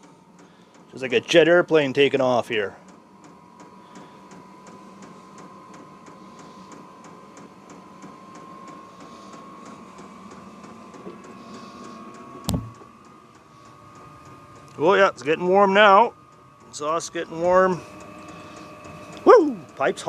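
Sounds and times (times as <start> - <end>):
heater blower whine: 0.0 - 20.0
low hum: 3.6 - 15.4.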